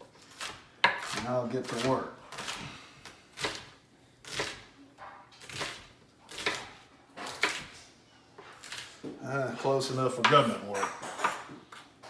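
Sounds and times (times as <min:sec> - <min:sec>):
knife chopping onion on board: 0:00.2 - 0:07.8.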